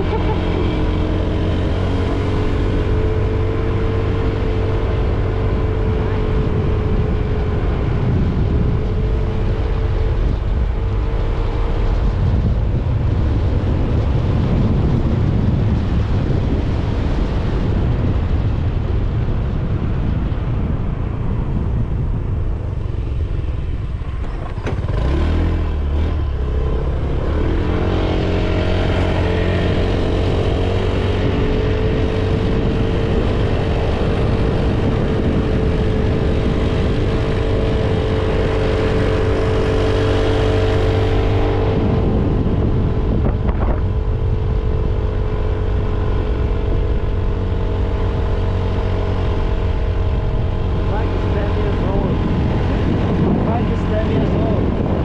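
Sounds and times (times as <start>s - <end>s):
motorcycle engine: 0.0s - 55.0s
wind on microphone: 0.0s - 55.0s.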